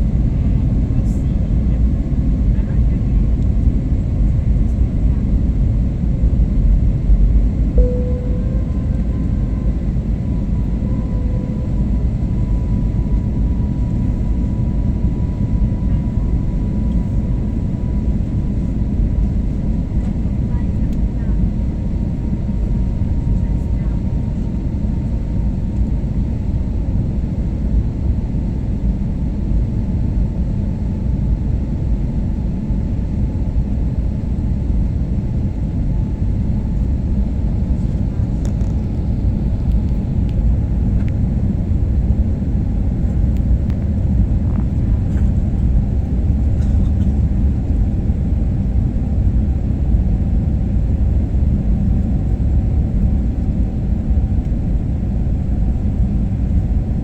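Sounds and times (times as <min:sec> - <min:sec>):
airliner engines rumbling in cabin: 0:00.0 - 0:57.0
faint steady whine: 0:07.7 - 0:21.6.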